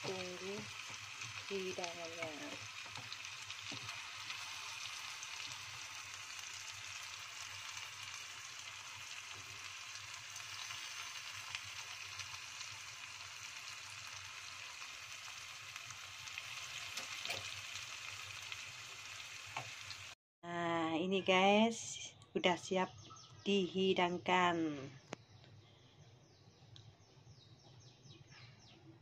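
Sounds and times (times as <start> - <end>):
tofu sizzling in a wok: 0.0 - 20.2.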